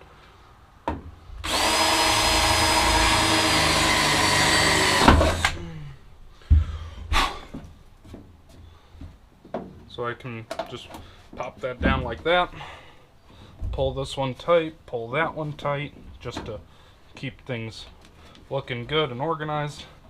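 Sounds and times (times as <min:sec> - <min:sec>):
knocks and clunks: 0:00.8 - 0:03.4, 0:10.5 - 0:12.6, 0:13.5 - 0:14.1
power drill whining: 0:01.4 - 0:05.8.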